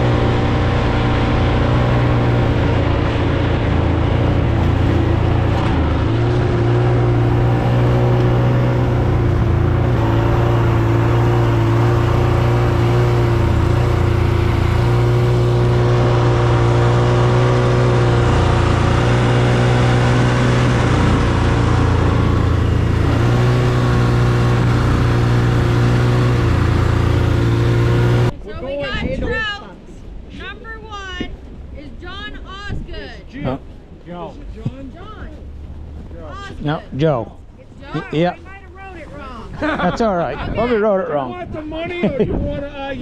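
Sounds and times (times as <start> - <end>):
vehicle engine running: 0.0 - 28.4.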